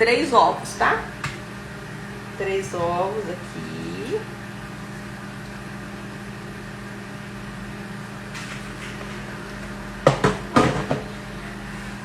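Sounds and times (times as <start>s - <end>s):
kitchen appliance humming: 0.0s - 12.0s
kitchenware knocking on counter: 10.0s - 11.1s.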